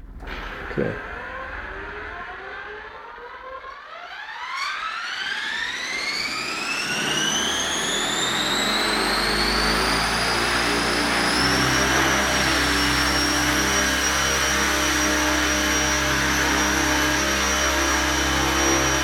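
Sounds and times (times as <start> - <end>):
helicopter turbine whine: 0.1 - 19.0
helicopter rotor rushing: 4.8 - 19.0.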